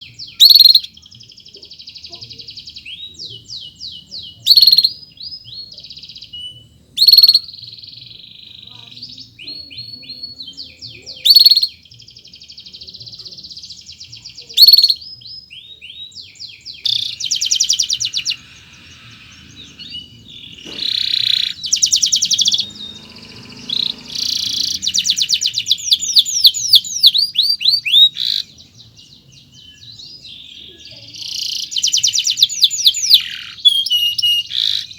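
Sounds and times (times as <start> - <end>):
canary singing trills: 0.0 - 34.9
sharp bird call notes: 0.1 - 1.0, 16.8 - 28.7, 29.7 - 34.9.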